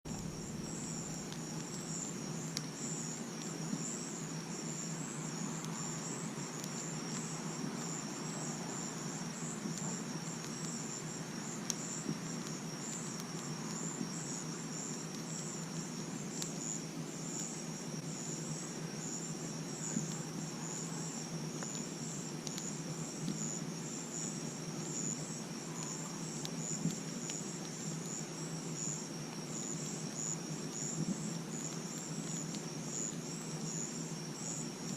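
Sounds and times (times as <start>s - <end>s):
campfire crackling and popping: 0.1s - 34.9s
crickets chirping: 0.1s - 34.9s.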